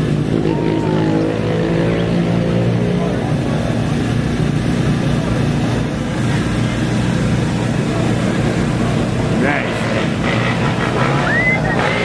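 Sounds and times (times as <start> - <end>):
race vehicle engine rumbling: 0.0 - 12.0.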